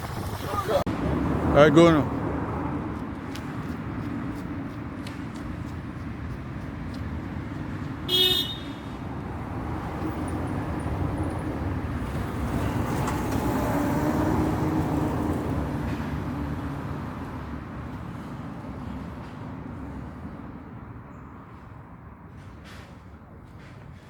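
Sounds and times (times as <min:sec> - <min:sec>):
vehicle road noise: 0:00.0 - 0:24.0
car horn toot: 0:08.1 - 0:09.0.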